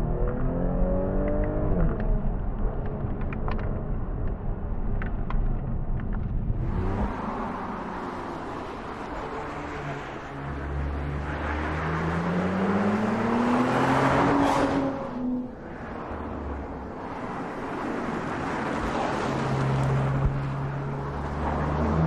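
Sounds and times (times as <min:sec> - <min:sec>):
tyre and road noise: 0:00.0 - 0:22.0
car engine accelerating: 0:06.5 - 0:16.7.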